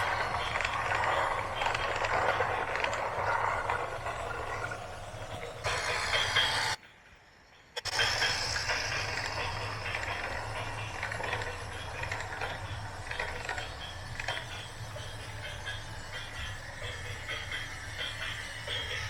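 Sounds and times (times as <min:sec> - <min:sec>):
mechanism clicking and rattling: 0:00.0 - 0:05.7
small motors humming: 0:00.0 - 0:06.8, 0:07.8 - 0:19.0.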